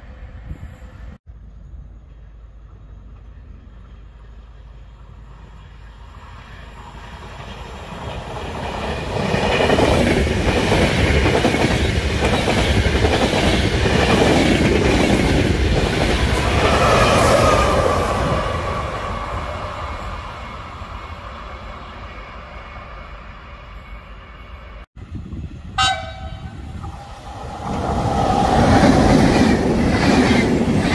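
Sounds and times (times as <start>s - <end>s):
wheels squealing on rails: 25.8s - 30.9s.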